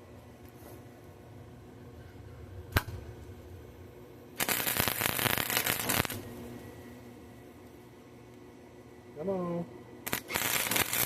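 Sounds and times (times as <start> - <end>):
welding arc crackling: 2.6 - 3.7, 4.3 - 6.7, 10.0 - 11.0.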